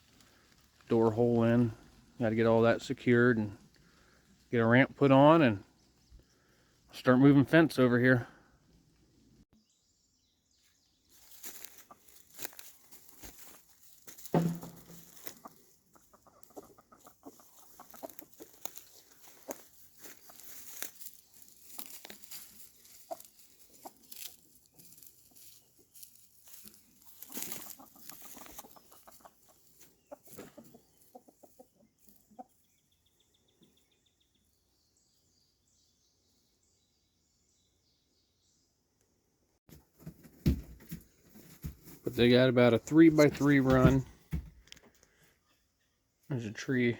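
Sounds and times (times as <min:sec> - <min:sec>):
chickens clucking: 0:11.2 - 0:13.6, 0:14.4 - 0:33.8
thump: 0:14.3 - 0:15.0.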